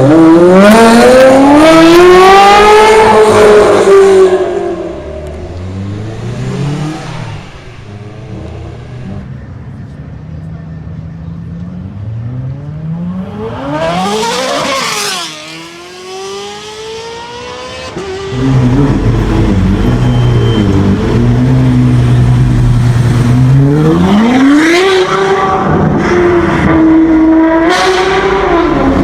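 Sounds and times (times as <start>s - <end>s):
car engine accelerating hard: 0.0s - 9.3s, 11.8s - 29.0s
loud car engine revving: 0.0s - 9.3s, 11.8s - 29.0s.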